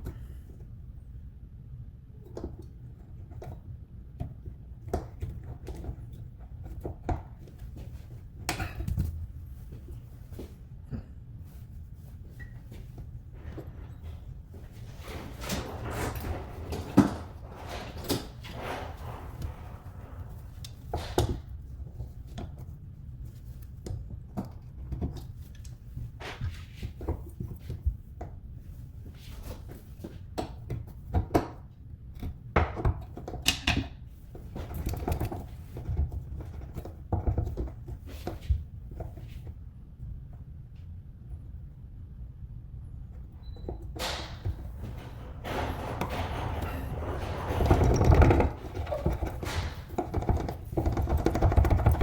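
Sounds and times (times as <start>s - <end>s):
tools clicking and knocking: 43.4s - 52.0s.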